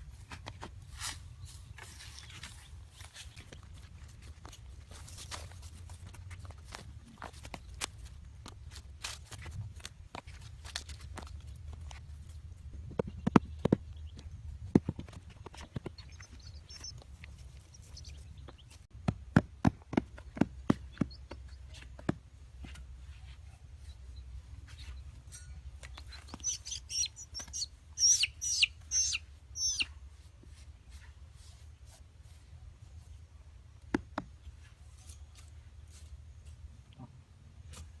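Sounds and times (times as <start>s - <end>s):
bird chirping: 15.5s - 18.9s, 25.8s - 30.0s.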